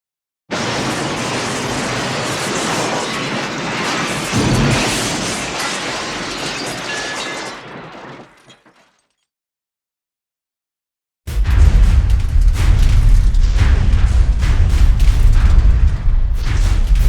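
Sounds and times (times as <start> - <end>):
metal and glass crash: 0.5 - 9.1
heavy low impact: 11.3 - 17.0.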